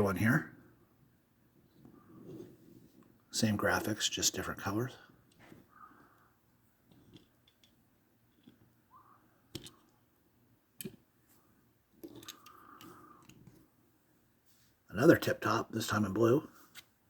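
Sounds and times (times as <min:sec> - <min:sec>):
soft rustle: 0:01.6 - 0:04.0, 0:11.2 - 0:14.9
toy cars ticking and clicking: 0:06.9 - 0:08.6, 0:12.0 - 0:13.5.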